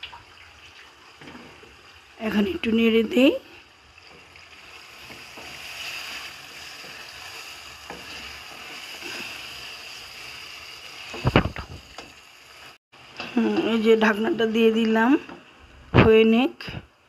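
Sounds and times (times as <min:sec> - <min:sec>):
chicken sizzling in oil: 0:00.0 - 0:15.2
spatula scraping pot: 0:04.4 - 0:09.7.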